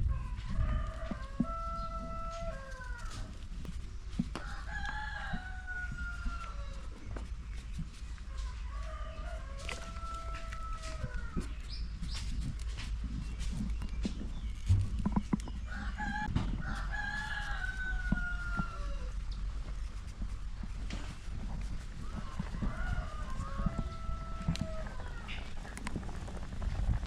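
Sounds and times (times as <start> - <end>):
rooster crowing: 0.1 - 3.3, 4.4 - 6.8, 8.8 - 11.4, 15.7 - 19.2, 22.0 - 25.3.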